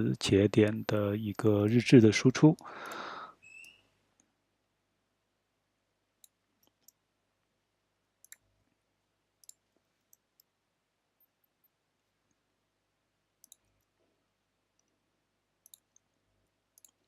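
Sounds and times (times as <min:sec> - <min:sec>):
computer keys or mouse clicks: 0:08.2 - 0:08.5, 0:09.4 - 0:10.5, 0:13.4 - 0:13.9, 0:15.6 - 0:16.1, 0:16.7 - 0:17.0.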